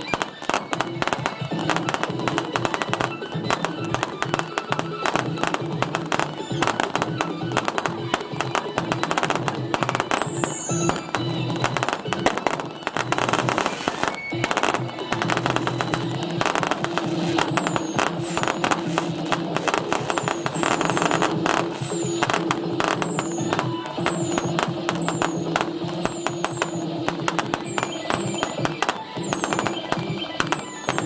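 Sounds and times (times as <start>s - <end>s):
fireworks crackling and popping: 0.0s - 31.0s
fireworks whistling: 0.0s - 31.0s
music: 0.0s - 31.0s.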